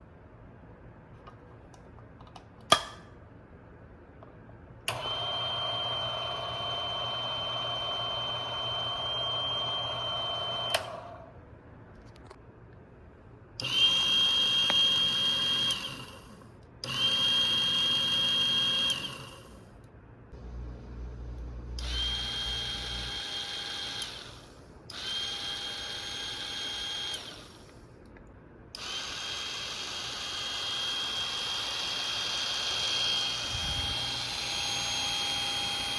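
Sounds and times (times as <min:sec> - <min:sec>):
coffee grinder motor running: 0:05.0 - 0:11.2, 0:13.7 - 0:16.3, 0:16.9 - 0:19.5, 0:20.4 - 0:27.7, 0:28.8 - 0:35.9
high-pitched motor whine: 0:30.0 - 0:35.9.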